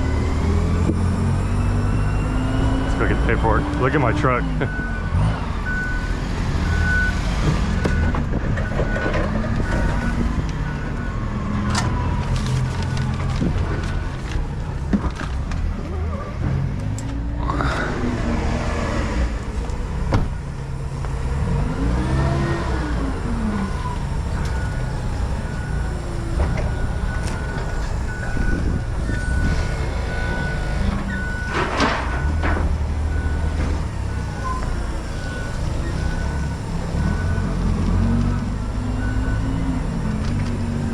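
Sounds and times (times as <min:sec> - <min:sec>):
heavy vehicle engines rumbling: 0:00.0 - 0:40.9
backup alarm beeping: 0:23.6 - 0:40.2.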